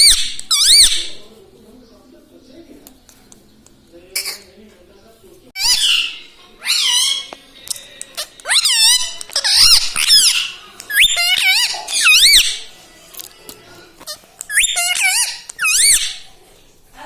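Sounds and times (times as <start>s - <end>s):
parrot calling: 0.0s - 1.2s, 5.6s - 12.8s, 14.0s - 16.4s.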